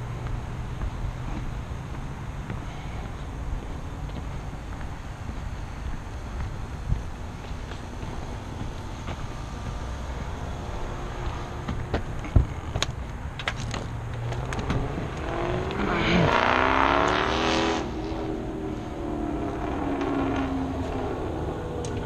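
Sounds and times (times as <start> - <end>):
vehicle driving past: 5.5 - 22.0.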